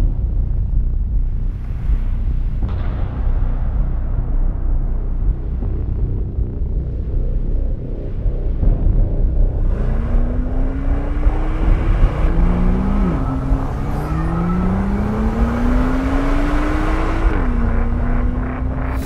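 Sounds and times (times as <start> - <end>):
car engine accelerating hard: 9.5 - 19.0.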